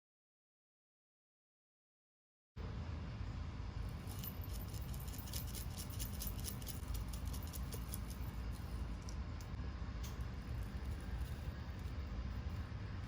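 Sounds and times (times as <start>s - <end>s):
steady low rumble: 2.6s - 13.0s.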